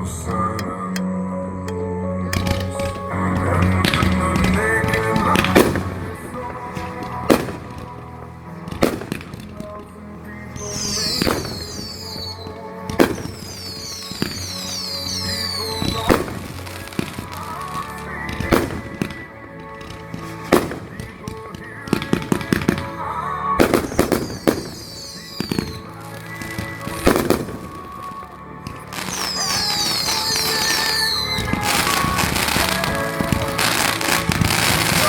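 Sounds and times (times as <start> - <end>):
fireworks bangs: 1.7 - 35.0
firework whistles falling in pitch: 13.2 - 16.3, 23.9 - 25.9, 29.0 - 32.9.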